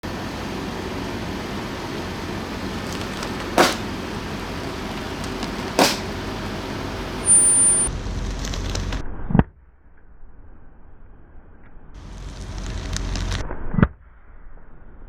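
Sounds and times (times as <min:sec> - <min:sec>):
car rumbling slowly: 0:00.0 - 0:09.0, 0:12.0 - 0:13.4
sharp crack under tyre: 0:02.8 - 0:04.2, 0:12.0 - 0:13.4.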